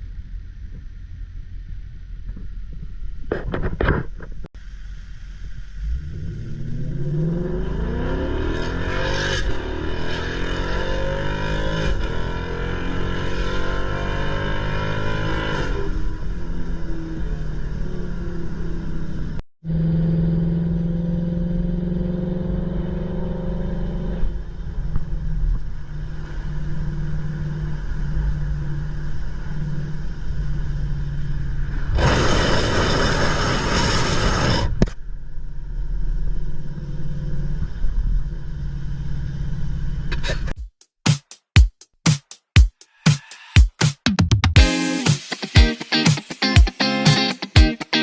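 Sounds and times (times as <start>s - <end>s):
car engine and exhaust running: 0.0s - 40.5s
music with drum-machine beat: 40.6s - 48.0s.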